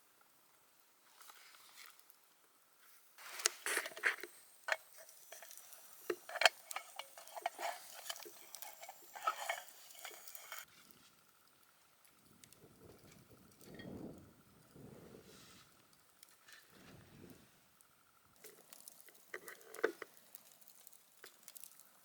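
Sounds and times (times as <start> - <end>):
utensil clinking on cookware: 4.7 - 10.6.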